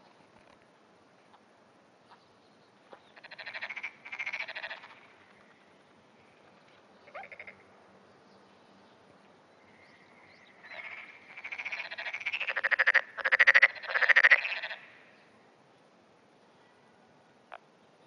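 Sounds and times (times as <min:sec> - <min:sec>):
frog croaking and trilling: 0:03.2 - 0:05.1, 0:07.0 - 0:07.6, 0:09.6 - 0:15.2.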